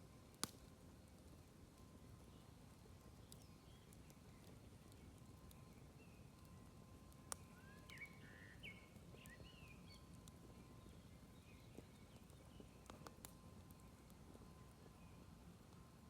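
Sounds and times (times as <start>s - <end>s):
campfire rumbling: 0.0s - 16.0s
fire crackling: 0.0s - 16.0s
bird chirping: 7.5s - 10.0s.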